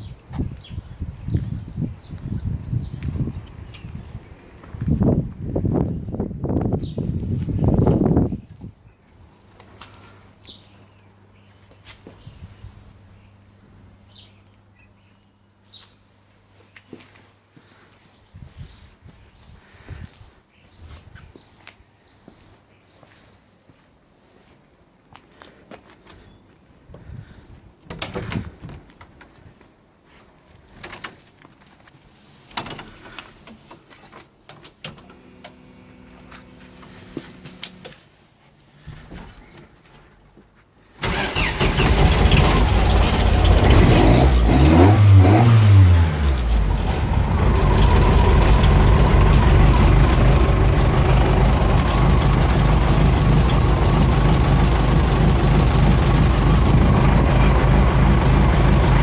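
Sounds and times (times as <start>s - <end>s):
race car engine revving and idling: 41.8s - 59.0s.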